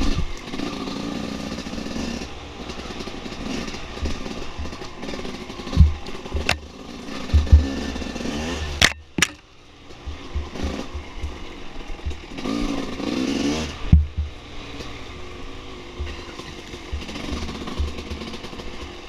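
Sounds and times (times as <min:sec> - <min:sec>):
dirt bike engine revving: 0:00.0 - 0:19.0
low thumps: 0:05.7 - 0:06.6, 0:07.3 - 0:08.0, 0:10.0 - 0:12.3, 0:13.9 - 0:14.4, 0:16.0 - 0:18.4
sharp knocks: 0:05.7 - 0:06.7, 0:07.3 - 0:07.9, 0:08.8 - 0:09.4, 0:10.0 - 0:11.4, 0:13.9 - 0:14.4, 0:16.0 - 0:18.4.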